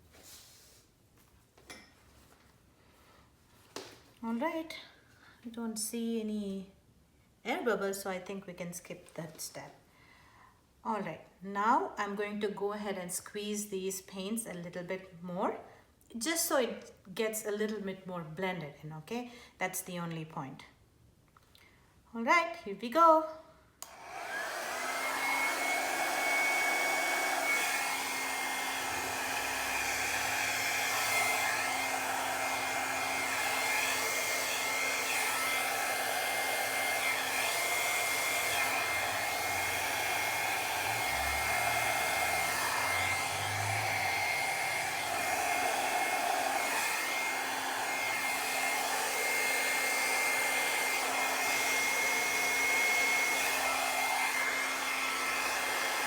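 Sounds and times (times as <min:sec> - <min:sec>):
hair dryer blowing air: 0:23.8 - 0:56.0.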